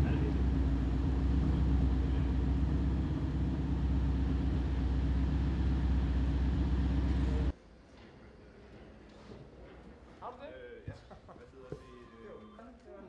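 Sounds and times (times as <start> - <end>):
car engine running steadily: 0.0 - 7.5.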